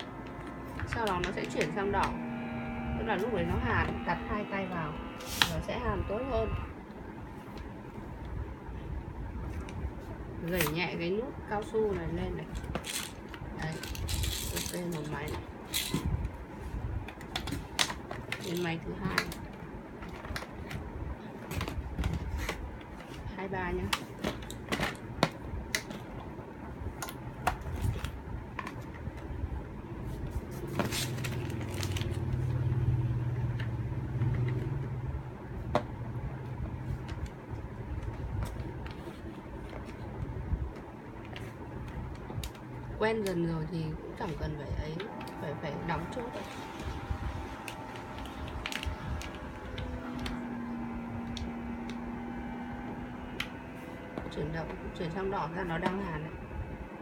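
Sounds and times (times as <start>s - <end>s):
vacuum pump humming: 0.0s - 6.8s, 44.5s - 57.0s.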